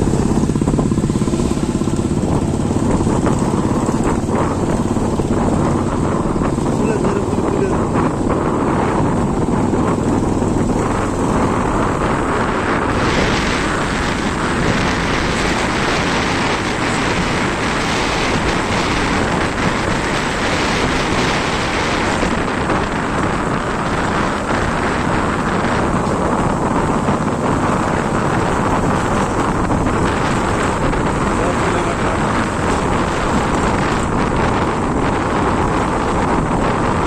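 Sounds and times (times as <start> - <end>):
vehicle engine running: 0.0 - 37.0
wind on microphone: 0.0 - 37.0.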